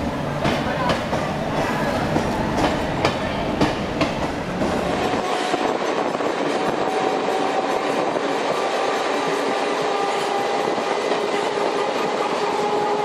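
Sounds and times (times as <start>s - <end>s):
electric train rolling by: 0.0s - 13.0s
train wheels clicking over rail joints: 0.3s - 5.2s.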